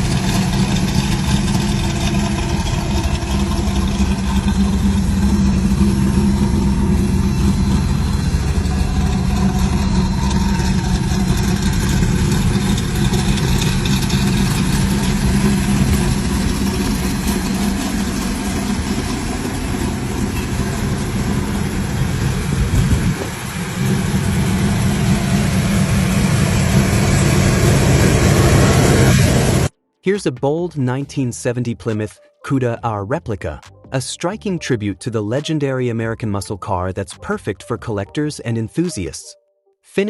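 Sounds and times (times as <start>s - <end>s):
car engine idling: 0.0s - 29.7s.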